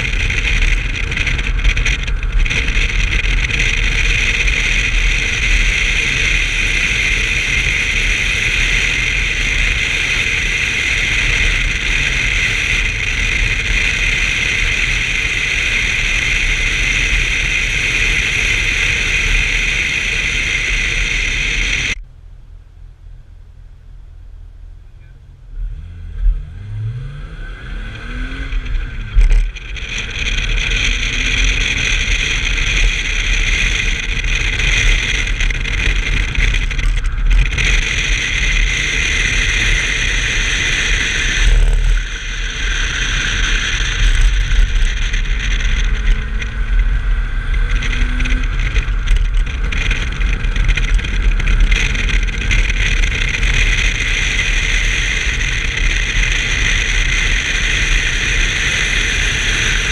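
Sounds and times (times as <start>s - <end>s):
car engine running hard: 0.0s - 22.0s, 24.6s - 59.9s.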